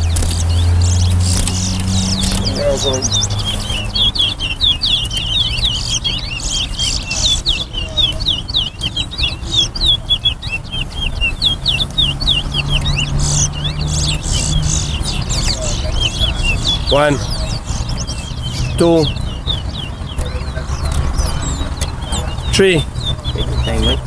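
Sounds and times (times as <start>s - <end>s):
finches singing: 0.0s - 24.0s.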